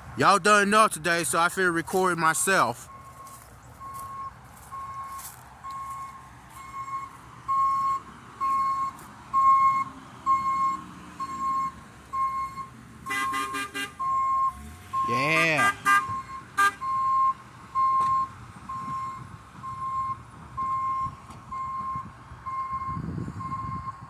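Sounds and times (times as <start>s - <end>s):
low engine rumble: 0.0s - 24.0s
backup alarm beeping: 2.9s - 24.0s
multi-tone horn: 13.0s - 16.9s.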